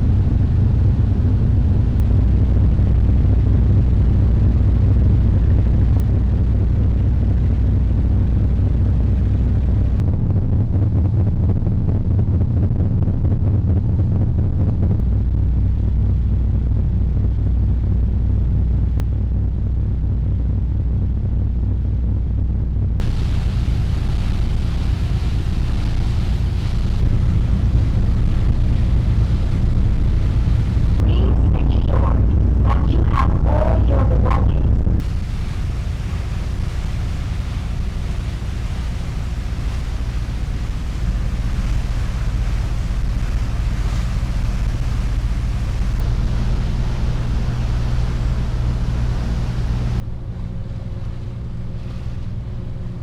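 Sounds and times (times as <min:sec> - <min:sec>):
deep engine rumble: 0:00.0 - 0:53.0
ferry engines droning: 0:45.8 - 0:50.1.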